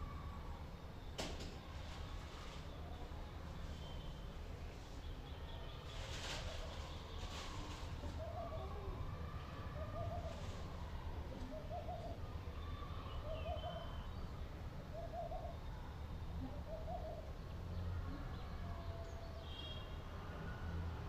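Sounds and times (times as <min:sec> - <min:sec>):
faint high bird chirps: 0:05.0 - 0:14.4.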